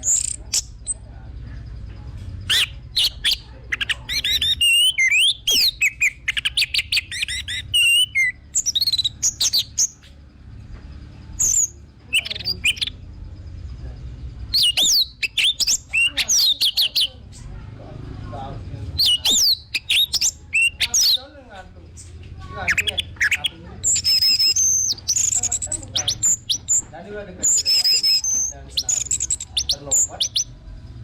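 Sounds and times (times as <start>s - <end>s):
thrush singing whistled phrases: 2.5s - 10.0s, 11.4s - 13.0s, 14.5s - 17.2s, 19.0s - 21.2s, 22.7s - 30.5s.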